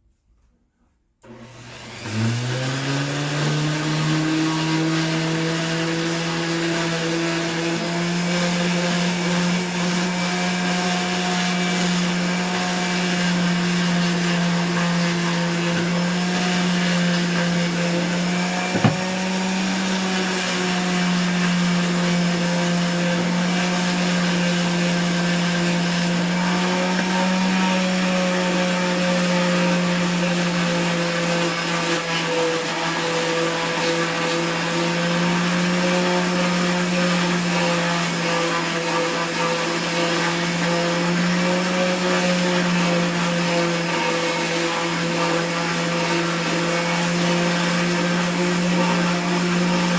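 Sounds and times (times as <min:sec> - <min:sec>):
electric motor humming: 0:18.6 - 0:19.3
sharp knock: 0:18.7 - 0:19.2.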